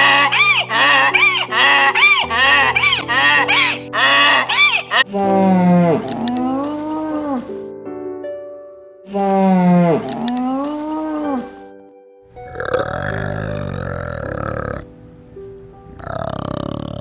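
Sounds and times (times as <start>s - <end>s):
animal call rising and falling: 0.0s - 7.5s
low grunting animal call: 0.0s - 7.5s, 9.1s - 11.5s, 12.4s - 14.9s, 16.0s - 17.0s
background music: 0.0s - 17.0s.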